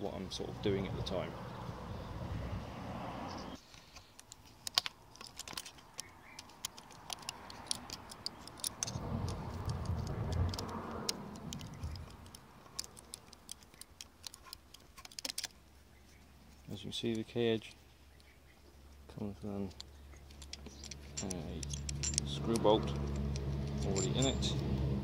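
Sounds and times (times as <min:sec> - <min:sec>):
small plastic and metal parts clicking: 0:03.6 - 0:15.6, 0:19.4 - 0:24.7
low rumble: 0:08.9 - 0:12.3.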